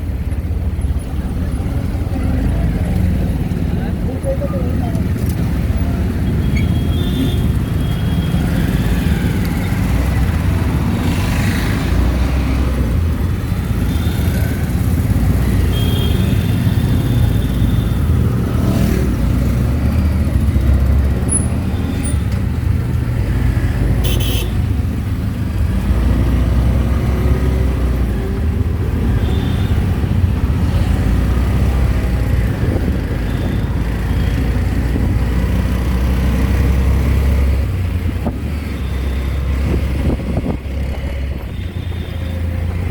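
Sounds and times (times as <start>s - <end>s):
auto-rickshaw engine running: 0.0s - 42.9s
street traffic: 0.0s - 42.9s
vehicle horn toots: 24.0s - 24.6s.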